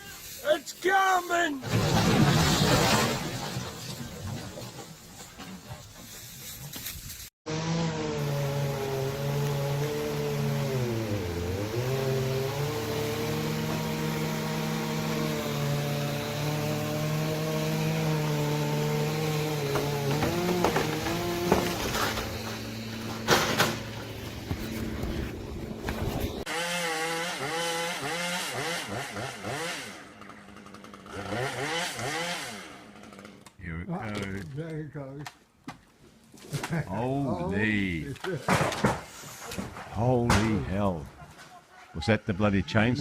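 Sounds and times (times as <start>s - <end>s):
chainsaw engine revving: 7.5s - 24.2s, 26.4s - 33.5s.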